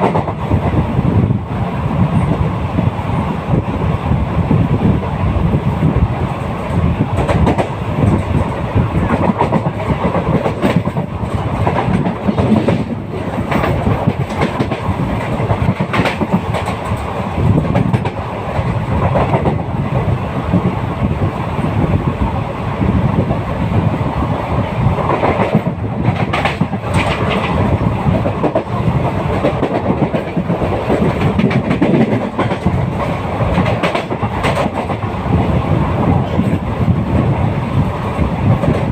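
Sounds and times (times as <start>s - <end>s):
train wheels clacking over rails: 0.0s - 1.0s, 5.8s - 20.8s, 24.6s - 38.9s
train rumble and rattle: 0.0s - 38.9s.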